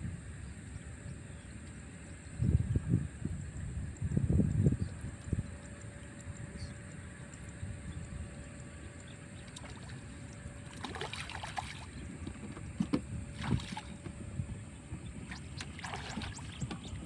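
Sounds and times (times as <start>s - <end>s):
steady low rumble: 0.0s - 17.0s
water sloshing and splashing: 9.4s - 17.0s.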